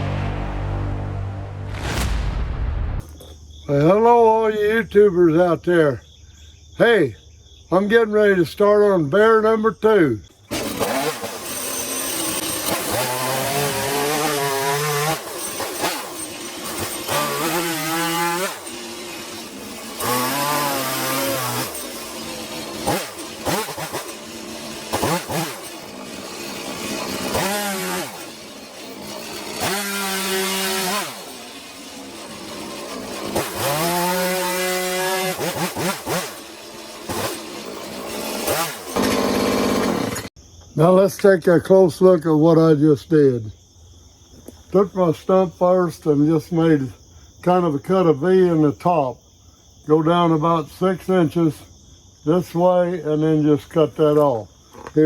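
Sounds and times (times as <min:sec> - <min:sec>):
chainsaw revving cutting wood: 0:10.3 - 0:40.4.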